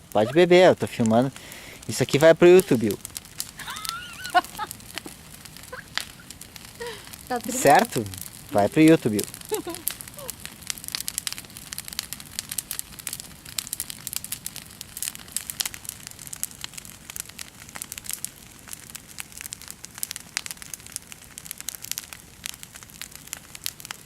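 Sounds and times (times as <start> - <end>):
low hiss: 0.0 - 15.7
wood bonfire crackling: 0.0 - 24.0.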